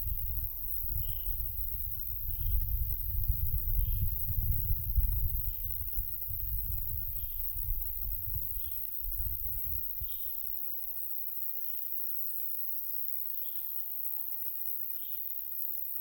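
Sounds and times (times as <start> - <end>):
wind buffeting microphone: 0.0 - 10.2
insects hissing: 0.0 - 16.0.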